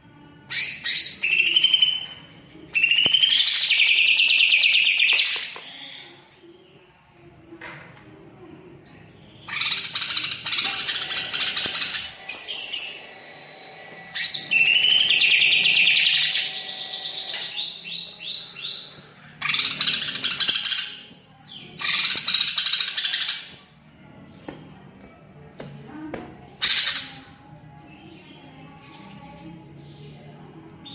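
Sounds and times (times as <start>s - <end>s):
bird singing varied phrases: 0.5s - 6.5s, 14.1s - 23.5s.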